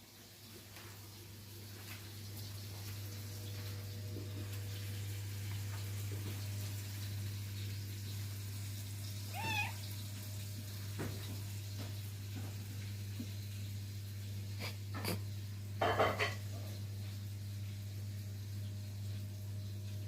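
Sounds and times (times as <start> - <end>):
cat meowing: 9.3 - 9.9.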